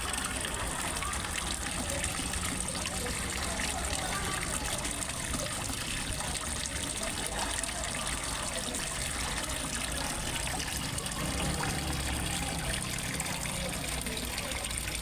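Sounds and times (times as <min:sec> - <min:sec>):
small waterfall splashing: 0:00.0 - 0:15.0.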